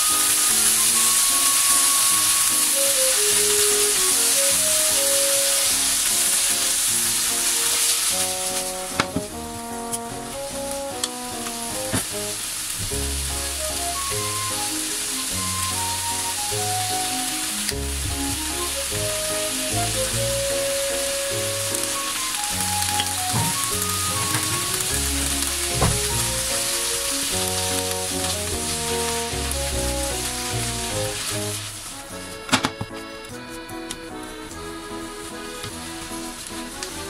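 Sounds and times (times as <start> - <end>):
vegetables sizzling in frying pan: 0.0 - 32.0, 35.2 - 37.0
background music with bass line: 17.6 - 21.6.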